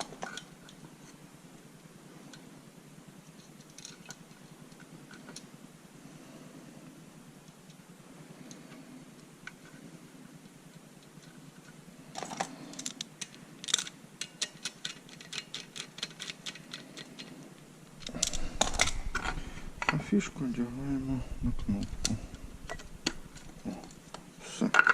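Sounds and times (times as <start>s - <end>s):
sharp small clicks: 10.7s - 19.2s
handling of wires: 10.7s - 24.9s.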